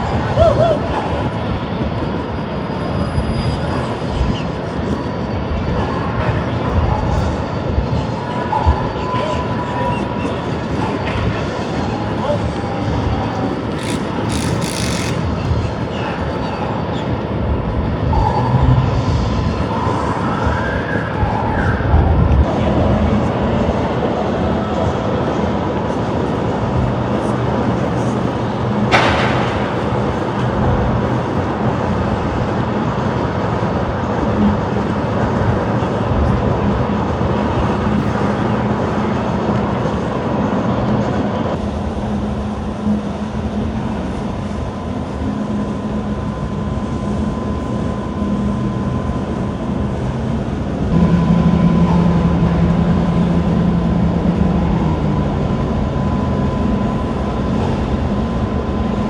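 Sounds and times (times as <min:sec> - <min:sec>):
ship engines rumbling: 0:00.0 - 0:59.0
faint steady hum: 0:40.8 - 0:59.0.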